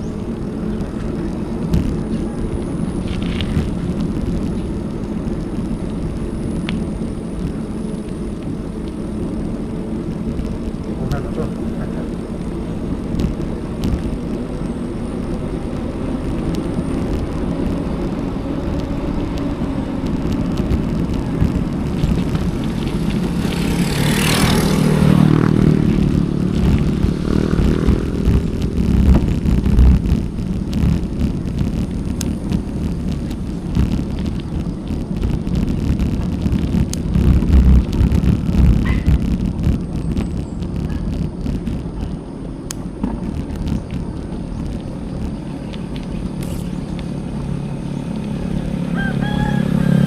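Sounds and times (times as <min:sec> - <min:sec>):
bicycle tyre noise: 0:00.0 - 0:50.0
motor vehicle passing: 0:00.0 - 0:50.0
wind rumble: 0:00.0 - 0:50.0.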